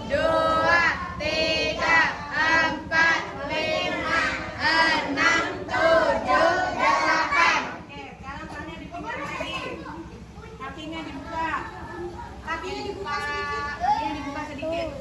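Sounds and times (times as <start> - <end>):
children singing: 0.0 - 7.8.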